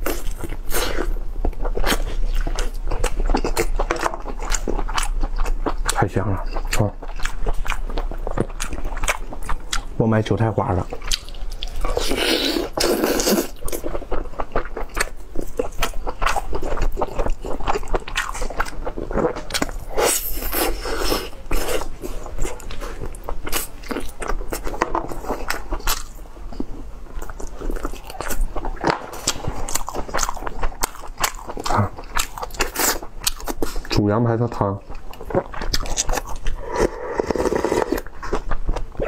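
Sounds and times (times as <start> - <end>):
person chewing meat: 0.0 - 34.0, 34.8 - 39.0.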